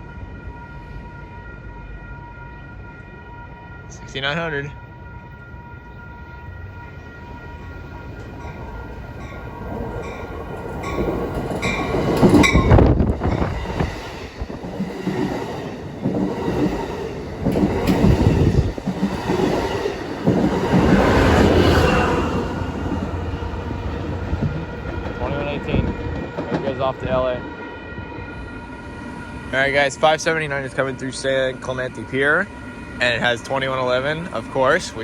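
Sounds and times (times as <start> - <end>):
passing train rumble: 0.0 - 35.0
wheels clattering on rails: 7.6 - 27.3.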